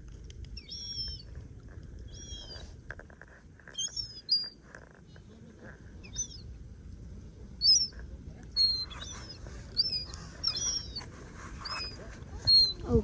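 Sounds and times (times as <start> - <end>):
songbirds chirping: 7.4 - 13.0.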